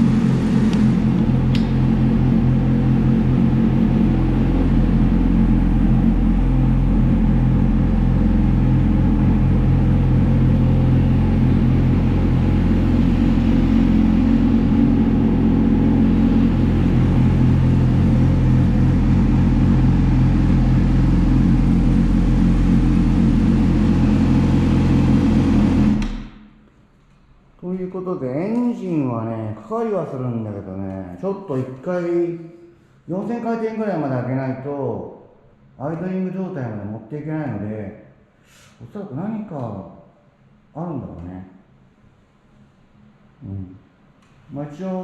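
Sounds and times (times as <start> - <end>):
motorcycle engine running: 0.0 - 26.4.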